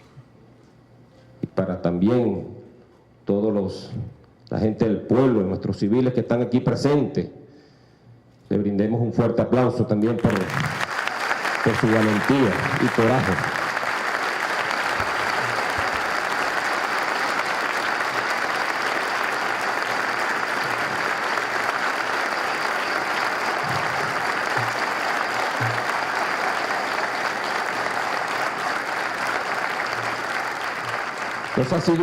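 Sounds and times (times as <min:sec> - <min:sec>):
audience applauding: 0:10.2 - 0:32.0.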